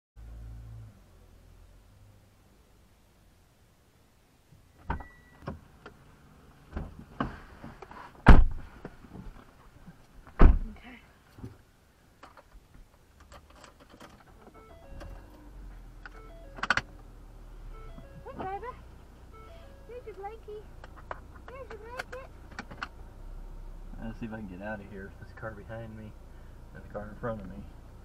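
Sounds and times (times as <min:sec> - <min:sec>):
knocks and thumps on a car: 0:08.3 - 0:08.7
low steady hum: 0:14.3 - 0:28.0.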